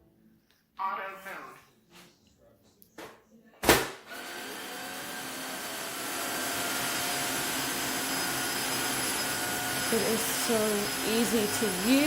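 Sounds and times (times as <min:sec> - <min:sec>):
floor cleaner motor whining: 0:04.1 - 0:12.0.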